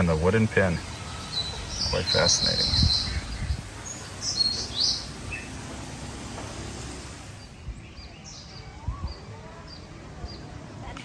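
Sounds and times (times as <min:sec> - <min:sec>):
steady background hum: 0:00.0 - 0:08.0
birds chirping: 0:00.0 - 0:10.6.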